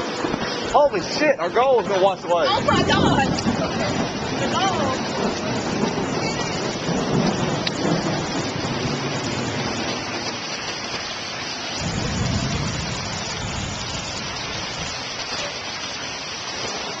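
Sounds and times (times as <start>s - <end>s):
rain: 0.0s - 17.0s
rushing floodwater: 0.0s - 17.0s.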